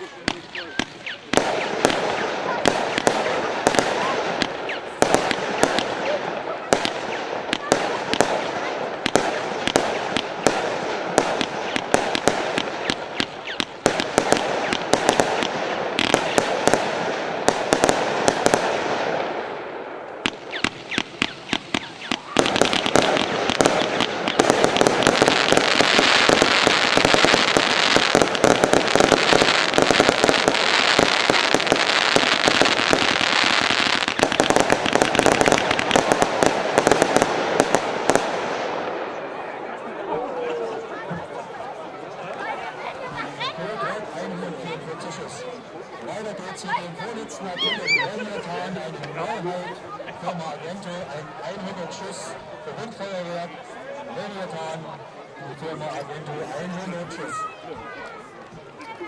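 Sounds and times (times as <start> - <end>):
firework battery shots crackling: 0.2 - 39.1.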